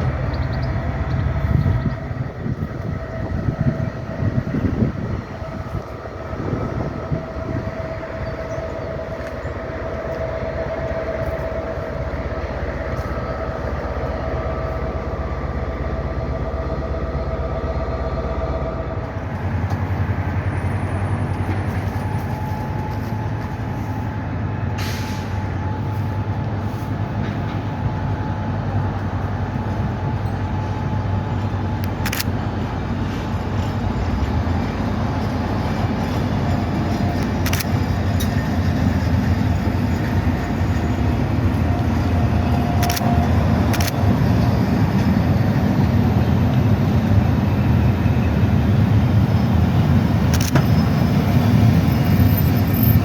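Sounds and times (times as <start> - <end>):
train rumble and hum: 0.0 - 53.0
short hiss: 24.8 - 25.4.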